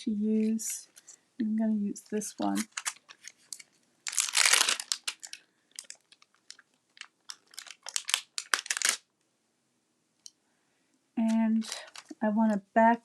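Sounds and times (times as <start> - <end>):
plastic sheet crinkling: 2.0 - 9.1, 11.2 - 12.6.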